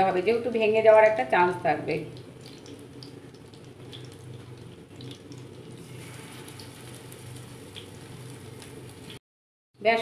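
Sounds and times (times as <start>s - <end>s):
food sizzling in hot oil: 2.0s - 9.2s.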